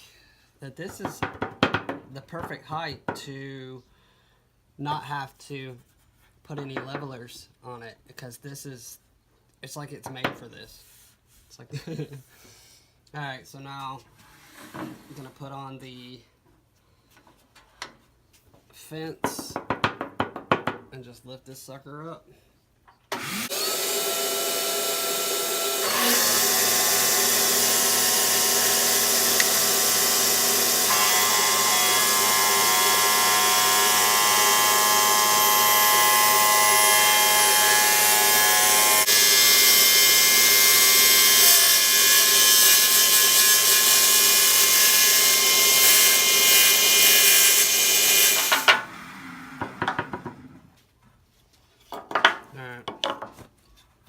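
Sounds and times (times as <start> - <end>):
table saw running: 23.2 - 50.5.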